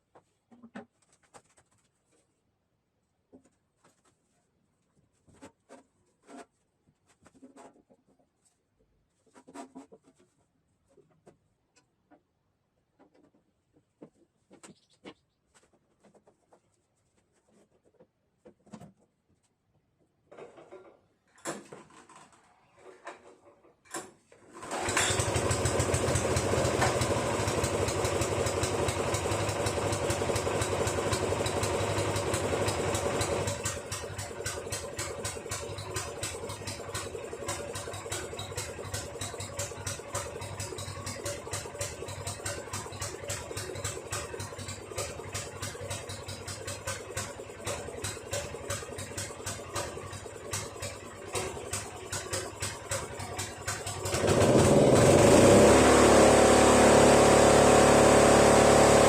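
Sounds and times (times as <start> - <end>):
snowblower engine running: 24.6 - 59.0.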